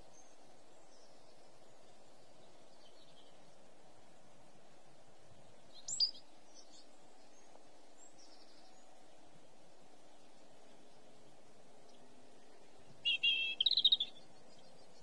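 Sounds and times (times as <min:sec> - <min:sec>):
outdoor background noise: 0:00.0 - 0:15.0
high bird calls: 0:13.0 - 0:15.0.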